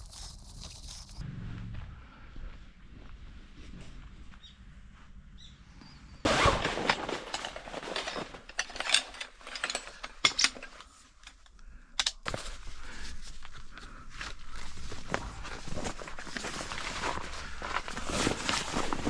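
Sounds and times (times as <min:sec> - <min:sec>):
rustling and rattling: 0:00.0 - 0:01.2, 0:06.3 - 0:11.4
tent gear clattering: 0:00.0 - 0:01.2, 0:06.3 - 0:11.4, 0:14.2 - 0:19.0.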